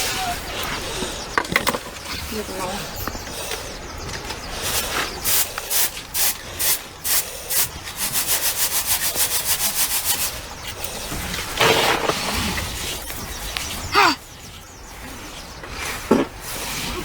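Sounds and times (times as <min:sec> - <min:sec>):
scraping strokes: 0:04.6 - 0:13.9.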